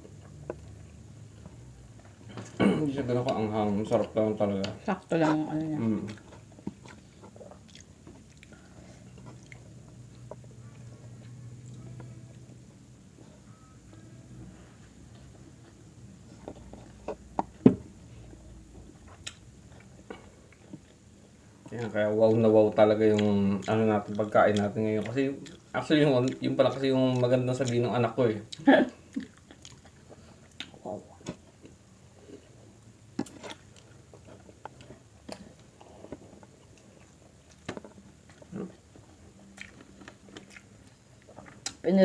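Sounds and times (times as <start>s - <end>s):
chewing smacks: 6.0s - 12.1s, 28.5s - 32.4s, 33.2s - 41.8s.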